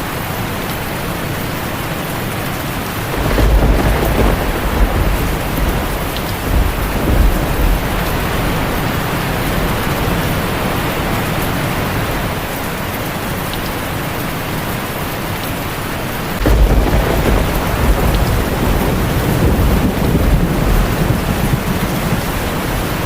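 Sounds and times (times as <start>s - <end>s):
heavy rain on a tin roof: 0.0s - 23.0s
thunder rumbling: 2.8s - 12.7s, 16.4s - 23.0s.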